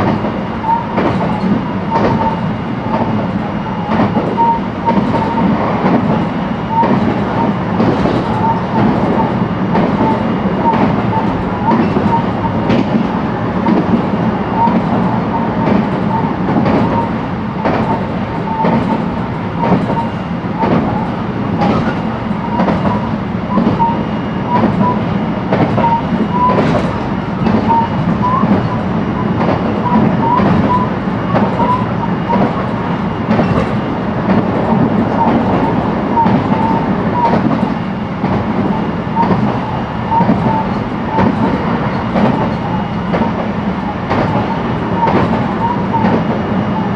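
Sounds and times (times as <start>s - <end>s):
train wheels rumbling on track: 0.0s - 46.9s
wheels clicking over rail joints: 3.9s - 23.9s, 44.1s - 46.4s.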